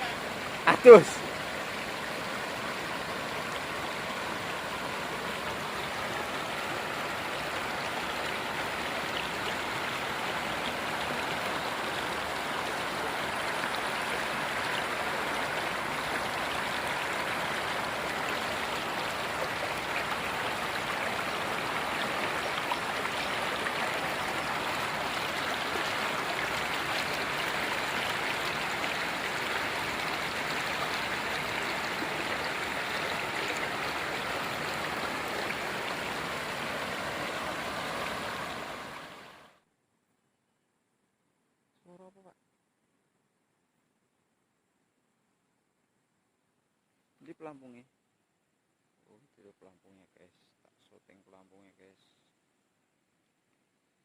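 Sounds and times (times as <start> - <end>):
river water flowing: 0.0 - 39.6.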